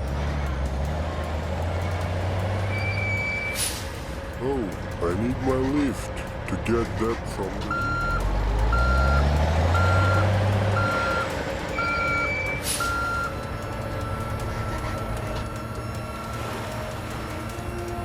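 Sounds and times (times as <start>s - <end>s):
low engine revving: 0.0s - 18.0s
truck reversing alarm beeping: 1.5s - 6.0s, 6.7s - 18.0s
short hiss: 3.6s - 4.1s.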